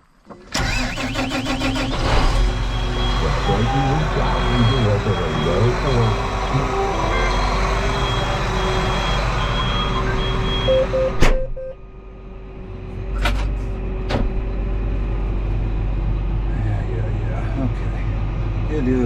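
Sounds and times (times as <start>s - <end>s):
tractor engine idling: 0.6s - 10.8s
electronic beeping: 2.5s - 11.8s.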